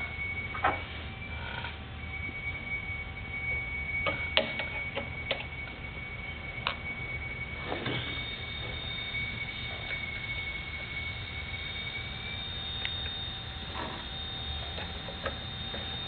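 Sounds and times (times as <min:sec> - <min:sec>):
thin high whine: 0:00.0 - 0:16.0.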